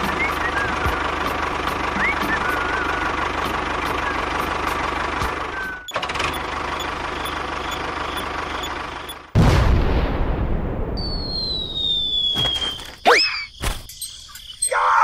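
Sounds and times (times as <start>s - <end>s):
engine idling: 0.0s - 9.4s.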